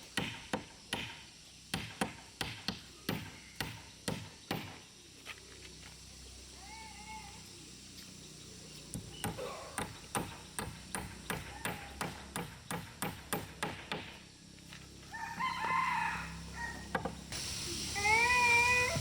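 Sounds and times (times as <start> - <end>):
hammering: 9.0 - 14.2.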